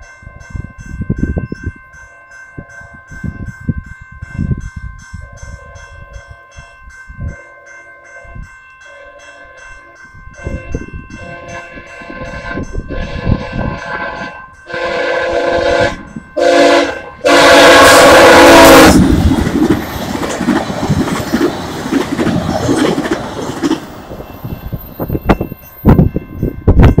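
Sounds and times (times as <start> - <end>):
train rushing past: 10.3 - 27.0
train horn blasts: 10.4 - 19.2
wheels clattering over rail joints: 19.0 - 24.8.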